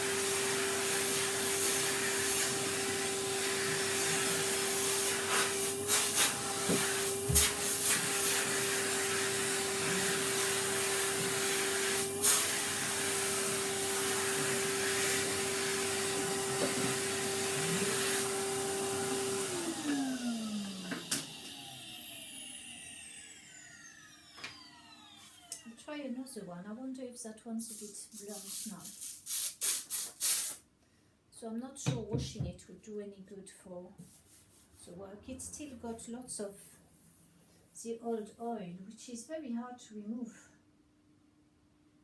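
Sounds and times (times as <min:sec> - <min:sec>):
vacuum cleaner running: 0:00.0 - 0:26.1
motor winding down whine: 0:19.6 - 0:25.9.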